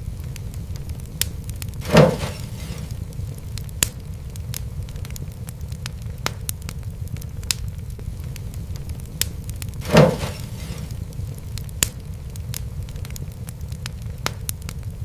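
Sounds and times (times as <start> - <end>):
low rumble: 0.0 - 15.0
wood fire crackling: 0.0 - 15.0
brief hiss: 1.8 - 3.0, 9.8 - 11.0.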